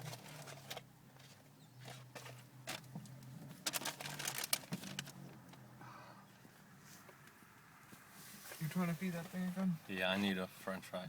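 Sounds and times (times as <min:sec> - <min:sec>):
clicks and rustling: 0:00.0 - 0:05.6.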